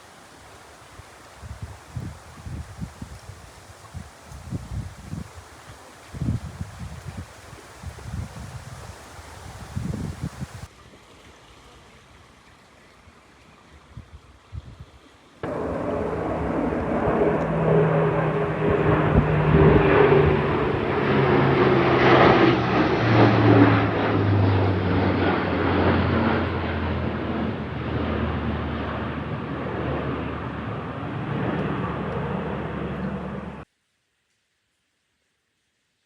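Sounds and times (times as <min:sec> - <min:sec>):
jet passing overhead: 0:15.4 - 0:33.6.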